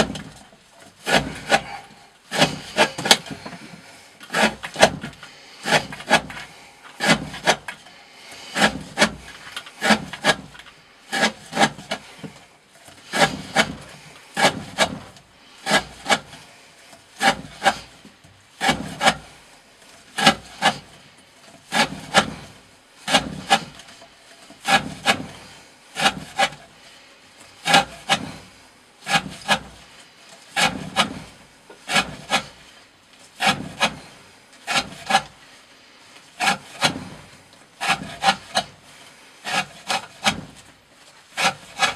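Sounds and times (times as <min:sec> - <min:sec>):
knife slicing through rope: 0:01.0 - 0:07.8, 0:08.4 - 0:12.4, 0:13.0 - 0:16.5, 0:17.2 - 0:18.0, 0:20.2 - 0:21.0, 0:21.7 - 0:24.0, 0:30.6 - 0:32.8, 0:33.4 - 0:35.4, 0:36.4 - 0:40.7, 0:41.3 - 0:41.9.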